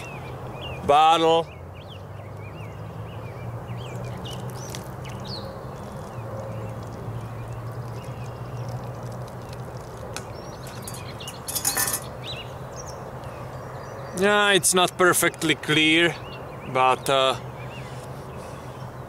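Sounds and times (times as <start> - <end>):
small birds chirping: 0.0 - 19.0
metal pot clattering on log: 10.2 - 12.2.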